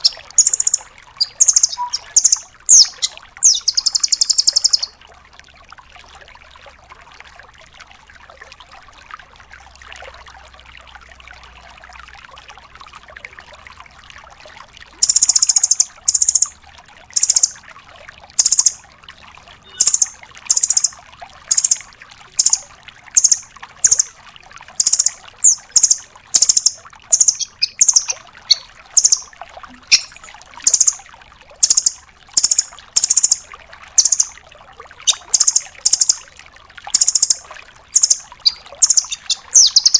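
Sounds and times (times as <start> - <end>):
bird giving sharp high calls: 0.0 - 4.9, 17.2 - 17.6, 19.6 - 20.9, 22.4 - 22.6, 24.8 - 31.0, 31.6 - 33.4, 34.0 - 34.3, 35.0 - 36.2, 36.9 - 39.9.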